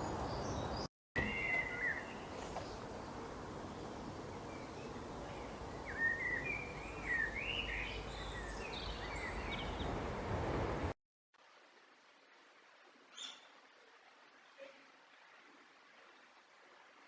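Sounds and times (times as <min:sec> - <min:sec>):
songbird singing: 0:00.0 - 0:10.0
outdoor background noise: 0:00.0 - 0:17.0.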